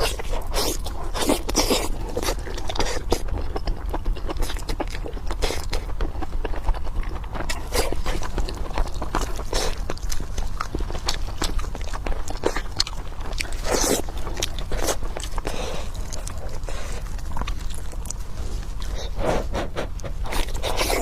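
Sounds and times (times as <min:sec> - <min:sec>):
person chewing and biting: 0:00.0 - 0:21.0.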